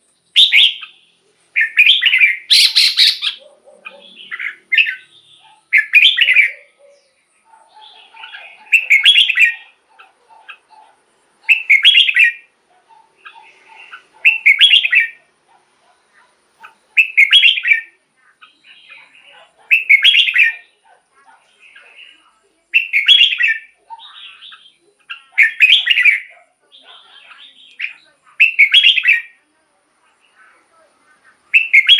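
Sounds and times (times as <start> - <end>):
soft bird chirps: 0.0 - 29.5, 30.2 - 31.9
bulbul whistled song: 0.3 - 1.0, 1.6 - 3.4, 4.2 - 6.7, 8.6 - 9.6, 11.5 - 12.5, 14.2 - 15.2, 17.0 - 18.0, 19.7 - 20.6, 22.8 - 24.8, 27.7 - 29.4, 31.5 - 31.9.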